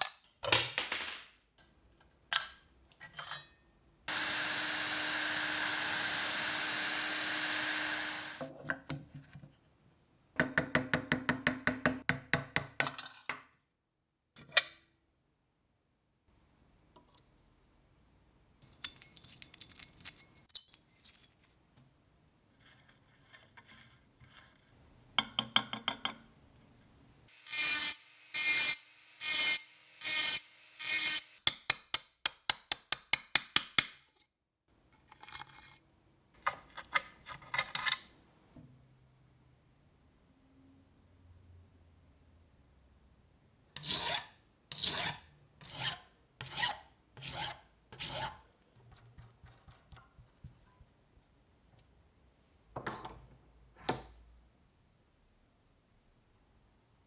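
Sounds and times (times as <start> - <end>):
filing rusty metal: 43.8 - 48.5.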